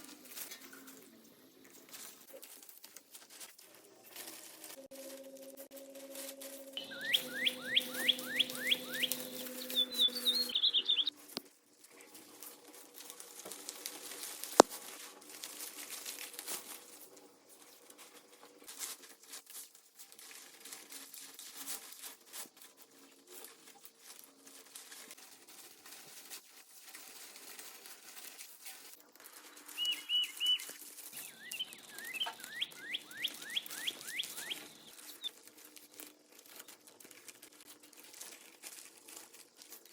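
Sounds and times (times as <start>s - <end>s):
rustling: 0.0s - 39.9s
bird singing whistled notes: 6.6s - 11.1s, 29.8s - 35.3s.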